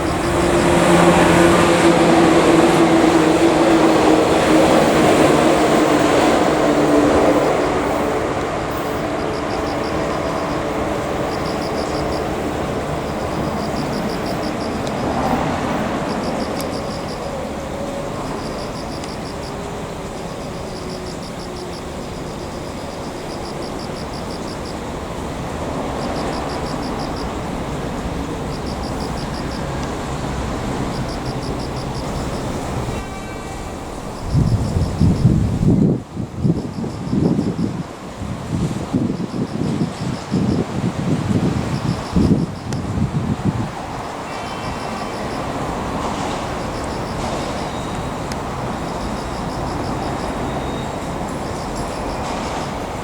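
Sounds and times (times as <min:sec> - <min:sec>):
train rumbling: 0:00.0 - 0:53.0.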